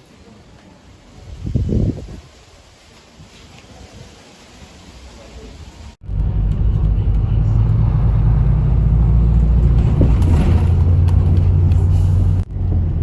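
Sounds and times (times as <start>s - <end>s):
large engine rumbling: 6.0s - 13.0s.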